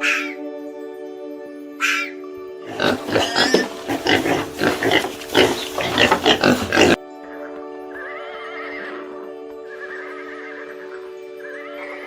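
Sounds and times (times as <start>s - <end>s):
pig grunting and squealing: 2.7s - 7.0s.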